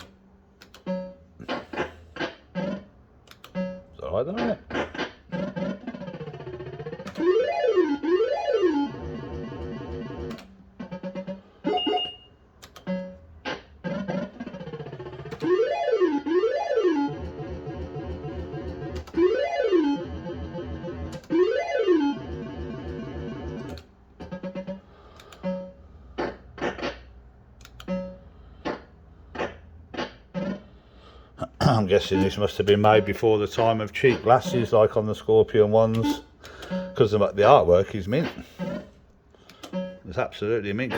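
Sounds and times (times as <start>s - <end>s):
machine clicks: 0.0s - 3.8s, 4.7s - 7.3s, 9.1s - 11.4s, 12.5s - 15.6s, 17.0s - 28.1s, 38.2s - 40.0s
electronic beeping tones: 11.0s - 13.2s.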